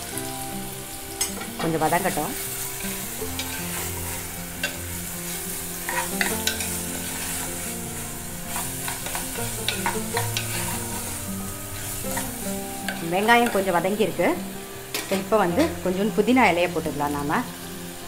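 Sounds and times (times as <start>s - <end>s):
onion sizzling in oil: 0.0s - 18.0s
spoon scraping pot: 5.8s - 7.7s, 8.5s - 11.2s.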